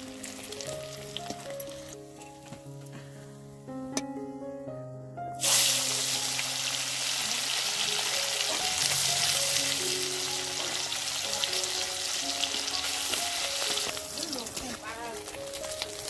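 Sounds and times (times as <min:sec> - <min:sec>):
food sizzling in hot oil: 0:00.0 - 0:02.1, 0:05.4 - 0:16.0
soft background music: 0:00.0 - 0:16.0.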